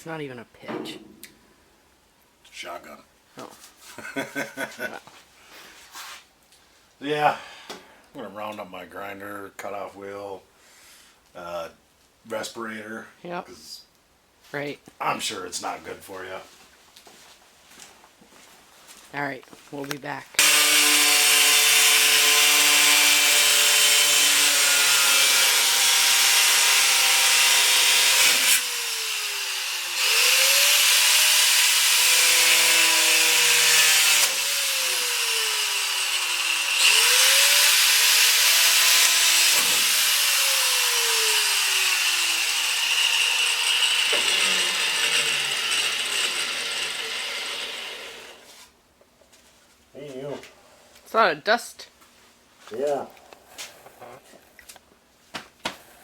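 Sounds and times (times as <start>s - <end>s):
angle grinder cutting fiberglass: 20.4s - 48.5s.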